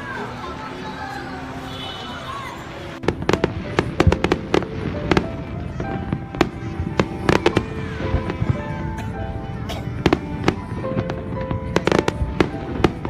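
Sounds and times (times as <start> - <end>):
firecrackers banging: 3.0 - 13.0.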